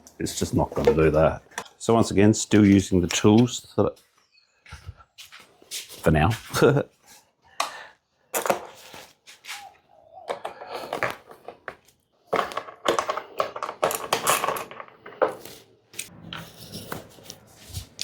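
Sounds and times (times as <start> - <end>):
hand tools clicking and scraping: 10.3 - 17.1.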